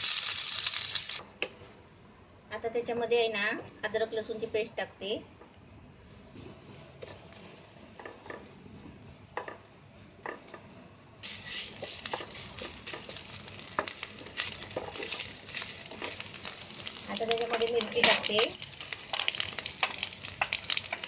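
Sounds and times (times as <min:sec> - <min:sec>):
loud frying sizzle: 0:00.0 - 0:01.2, 0:11.2 - 0:21.0
spatula scraping and knocking pan: 0:11.3 - 0:18.4.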